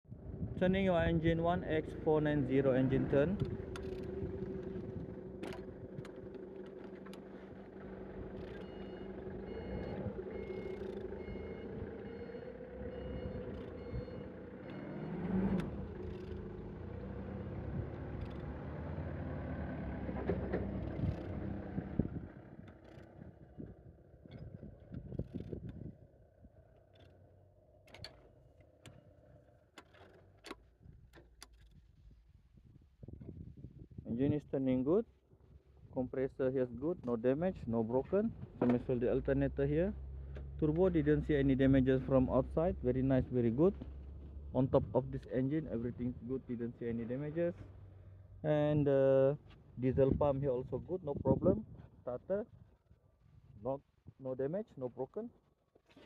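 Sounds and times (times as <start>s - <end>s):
vehicle engine running: 0.2s - 32.3s, 36.8s - 50.2s
reversing alarm beeping: 8.6s - 15.2s
metallic clicks and knocks: 27.8s - 29.0s, 29.8s - 31.8s.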